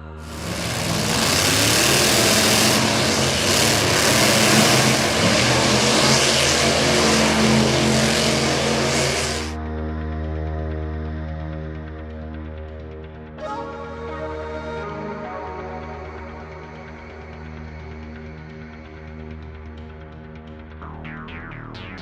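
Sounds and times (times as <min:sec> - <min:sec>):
background music: 0:00.0 - 0:22.0
vehicle engine revving: 0:00.2 - 0:09.6.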